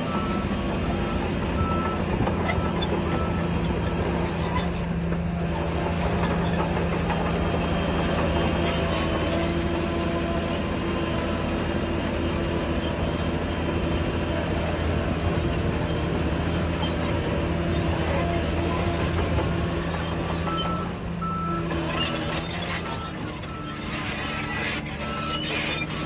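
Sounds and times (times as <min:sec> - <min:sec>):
bulldozer engine and tracks droning: 0:00.0 - 0:26.0.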